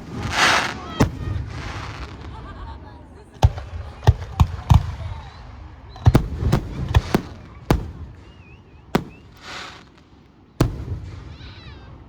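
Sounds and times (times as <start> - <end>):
fireworks booming: 0.0 - 2.6, 6.0 - 11.9
warbling firework whistle: 7.8 - 10.0.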